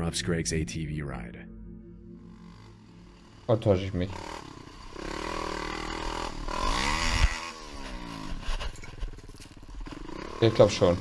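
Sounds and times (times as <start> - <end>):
atv engine revving: 2.3 - 11.0.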